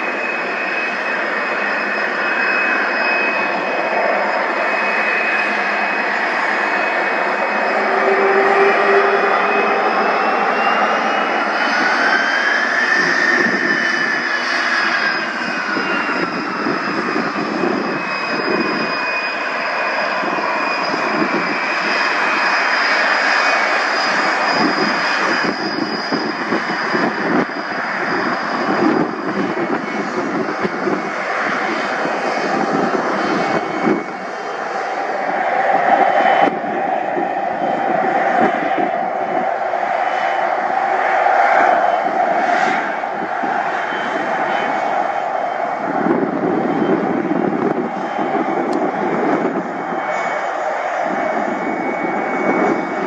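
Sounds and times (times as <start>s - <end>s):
aircraft engine running loudly: 0.0s - 53.0s
rising and falling whine: 0.0s - 53.0s
steady high tone: 0.1s - 21.4s.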